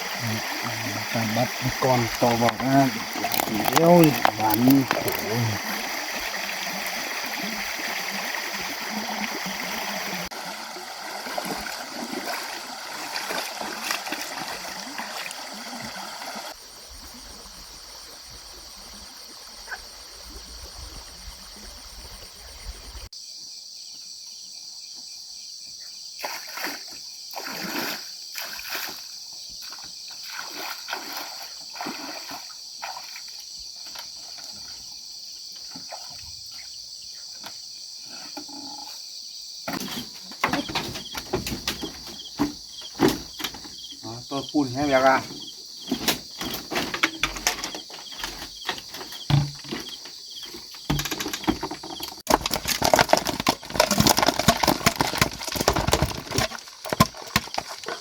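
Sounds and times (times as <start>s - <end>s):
insect chirring: 0.0s - 23.1s, 26.8s - 58.0s
water splashing and trickling: 0.0s - 23.1s, 26.2s - 37.6s, 39.7s - 58.0s
short knocks and rustles: 39.7s - 44.0s, 45.2s - 58.0s.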